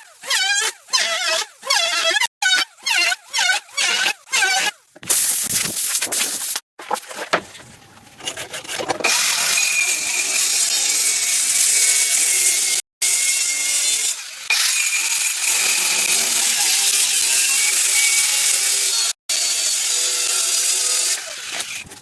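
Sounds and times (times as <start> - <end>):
power tool cutting wood: 9.0 - 21.9.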